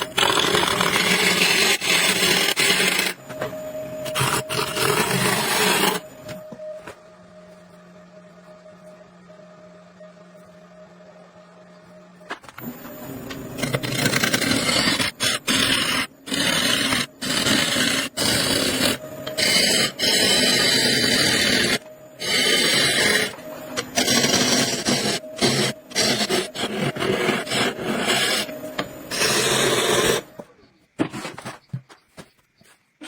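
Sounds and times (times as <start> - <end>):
tools grinding wood: 0.0 - 3.2, 4.0 - 6.5, 12.4 - 30.4, 31.0 - 32.8.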